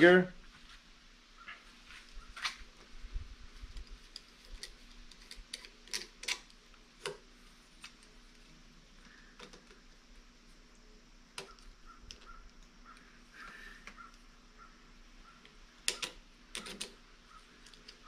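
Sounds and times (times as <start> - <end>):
faint steady hum: 0.0 - 18.0
small hard parts clicking: 3.7 - 7.2, 9.0 - 10.0, 15.4 - 17.0.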